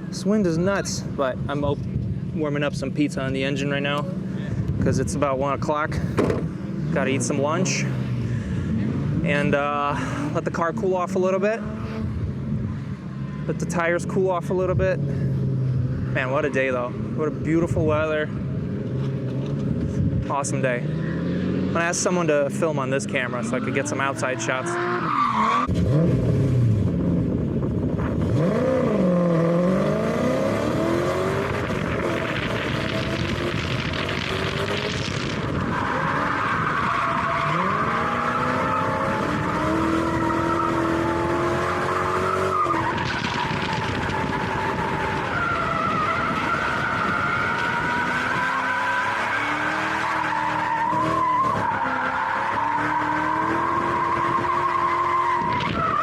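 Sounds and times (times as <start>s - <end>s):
car engine revving: 0.0s - 56.0s
tires squealing: 20.7s - 26.0s, 27.9s - 56.0s.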